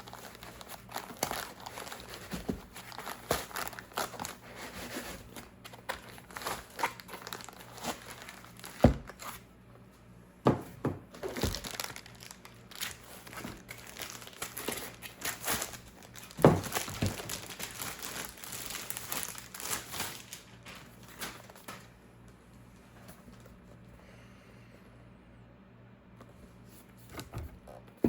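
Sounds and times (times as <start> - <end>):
packaging crinkling and rustling: 0.0 - 9.4, 11.1 - 22.0.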